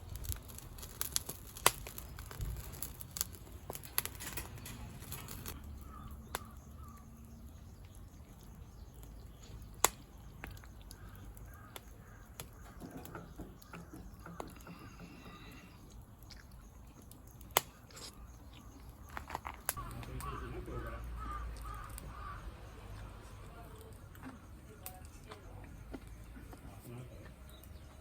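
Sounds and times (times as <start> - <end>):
crows cawing: 5.4 - 7.4, 10.6 - 15.6, 19.8 - 23.1.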